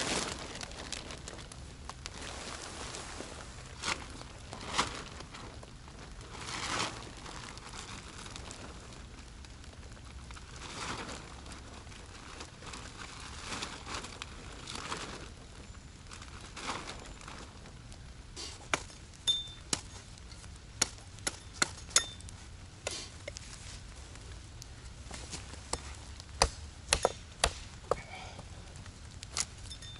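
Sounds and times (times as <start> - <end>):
rain tarp crinkling and rustling: 0.0 - 29.9
wood being chopped: 20.8 - 22.2, 25.7 - 28.1.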